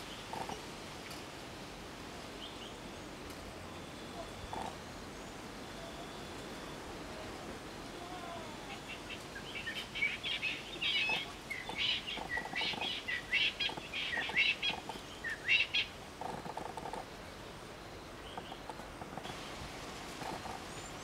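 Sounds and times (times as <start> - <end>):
bird singing chirping phrases: 8.6 - 16.0
low bird trill: 8.7 - 15.9.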